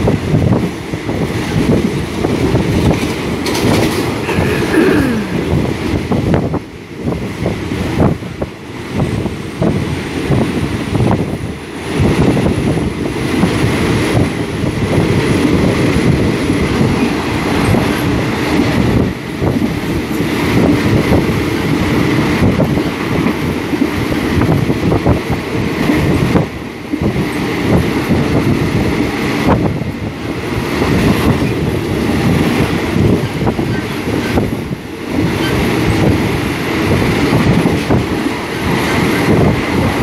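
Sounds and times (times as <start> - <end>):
wheels clacking over rail: 0.0 - 4.9
train rumbling: 0.0 - 40.0.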